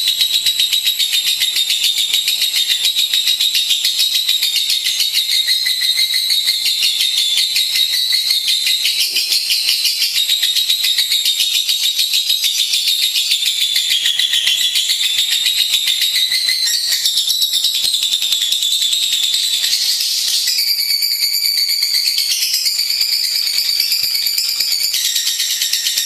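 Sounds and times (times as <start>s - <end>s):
lovebird chattering trill: 0.0s - 11.4s.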